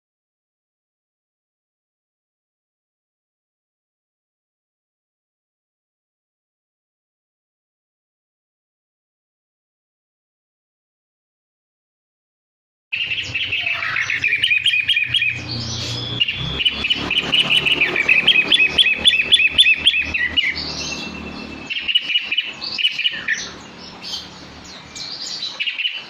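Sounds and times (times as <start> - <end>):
bird singing fast chattering song: 13.0 - 26.0.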